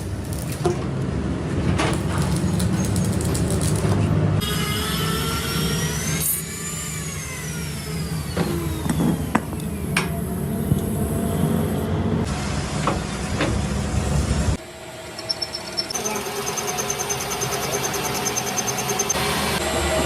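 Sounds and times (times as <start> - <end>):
lathe motor whine: 14.6 - 20.0.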